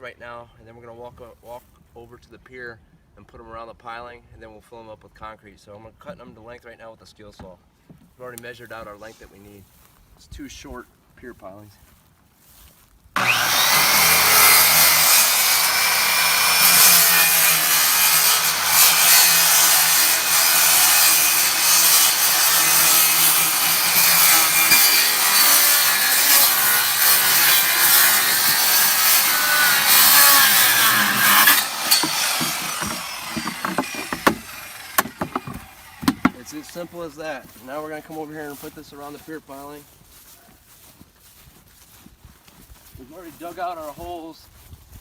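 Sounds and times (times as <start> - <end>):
circular saw cutting: 13.2 - 37.2
knocks: 31.9 - 34.4, 35.0 - 36.4.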